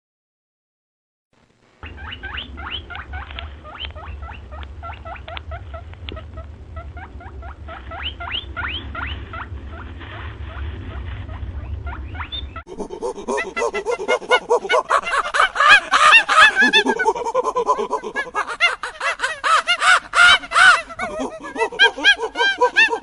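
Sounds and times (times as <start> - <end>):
steady low rumble: 1.6 - 23.0
small animal squeaking: 1.8 - 9.9, 11.3 - 12.6.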